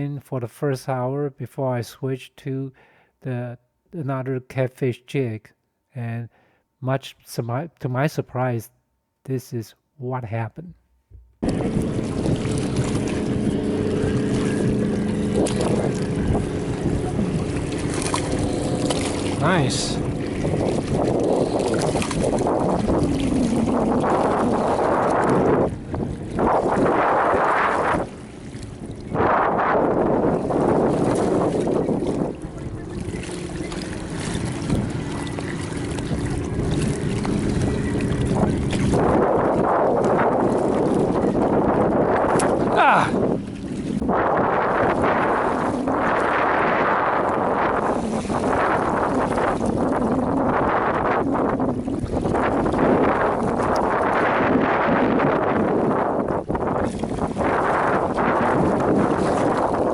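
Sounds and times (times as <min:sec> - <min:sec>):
wind on microphone: 0:11.1 - 0:59.9
motor drone with held tones: 0:11.2 - 0:41.7.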